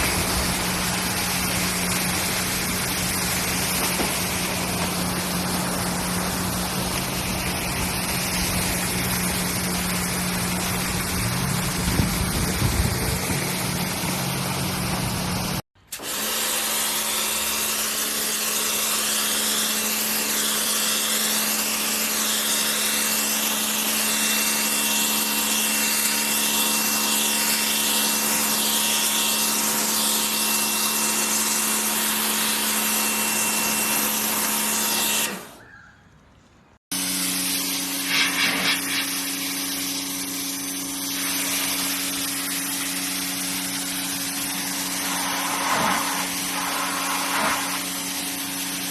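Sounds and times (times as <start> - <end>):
pressure washer low hum: 0.0 - 16.3, 36.9 - 48.9
pressure washer water jet hissing: 0.0 - 21.7, 37.0 - 48.9
pressure washer motor humming: 0.0 - 35.6, 36.9 - 48.9.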